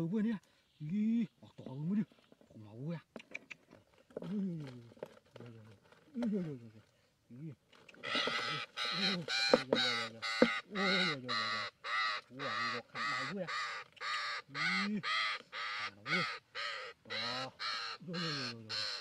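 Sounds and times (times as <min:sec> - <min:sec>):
bird squawking harshly: 0:08.0 - 0:19.0.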